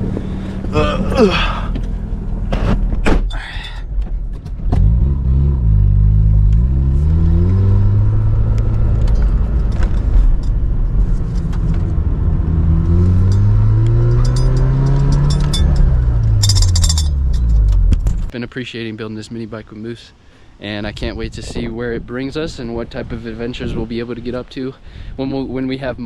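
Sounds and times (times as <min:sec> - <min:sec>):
car engine starting and revving: 0:00.0 - 0:03.1, 0:04.2 - 0:18.3
car door opening and shutting: 0:00.0 - 0:05.2.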